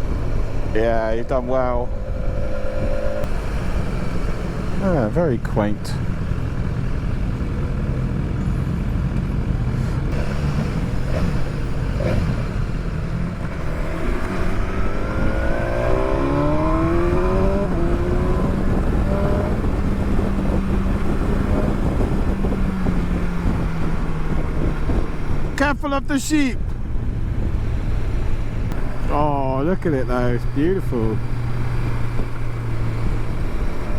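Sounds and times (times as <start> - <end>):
motorcycle engine running: 0.0 - 25.6
rushing wind: 0.0 - 33.9.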